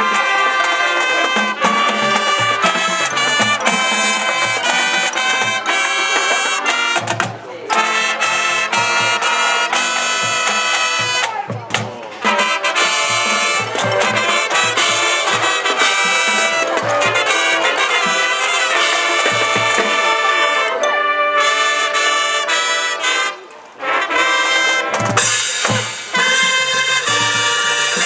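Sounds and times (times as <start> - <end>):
marching band playing: 0.0 - 28.0
trumpets and trombones: 0.0 - 28.0
steady low drum beat: 1.2 - 20.2.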